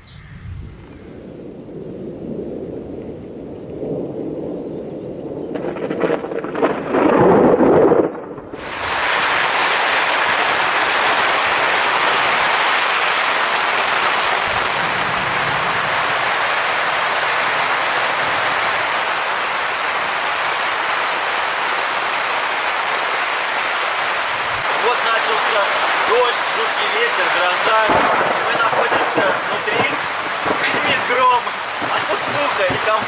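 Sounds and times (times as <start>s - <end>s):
thunder rumbling: 0.0s - 33.0s
heavy rain hissing: 8.5s - 33.0s.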